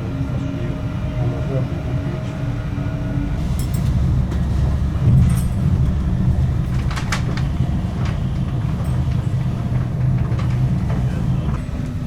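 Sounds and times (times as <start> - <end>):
train rumbling on track: 0.0 - 12.0
train wheels clicking and rattling: 3.4 - 12.0.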